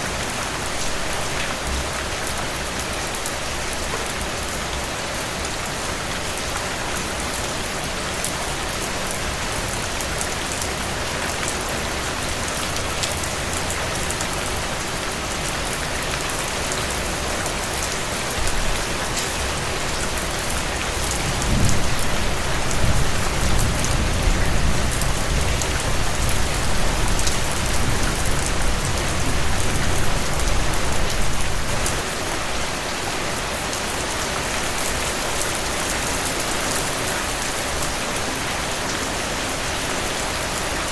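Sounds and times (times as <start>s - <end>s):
heavy rain pattering: 0.0s - 40.9s
thunder rumbling: 21.2s - 29.9s.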